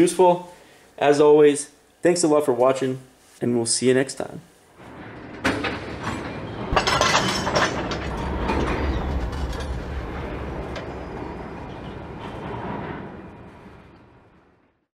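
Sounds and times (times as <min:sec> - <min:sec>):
train wheels clattering over rail joints: 0:04.8 - 0:14.8
low train rumble: 0:04.8 - 0:14.9.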